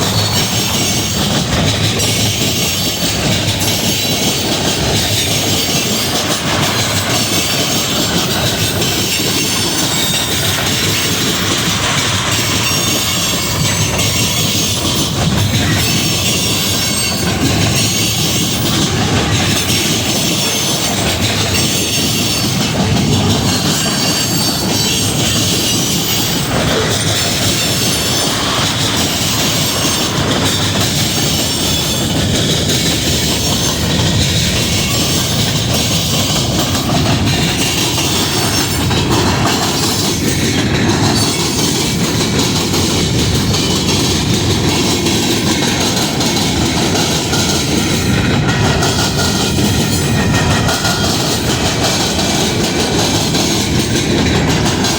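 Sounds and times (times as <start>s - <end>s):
train wheels clacking over rail joints: 0.0s - 54.9s.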